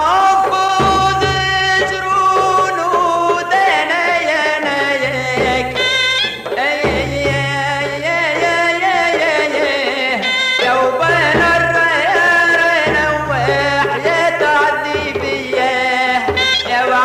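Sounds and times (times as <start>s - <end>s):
folk song with wavering melody: 0.0s - 17.0s
pulsing bass and drum: 0.7s - 2.5s, 5.0s - 5.8s, 6.8s - 8.1s.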